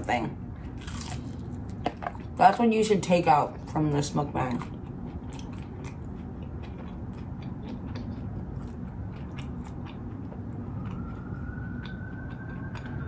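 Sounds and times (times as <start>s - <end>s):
chewing crunchy tortilla chips: 0.6s - 2.4s, 3.5s - 13.0s
faint siren: 9.6s - 13.0s.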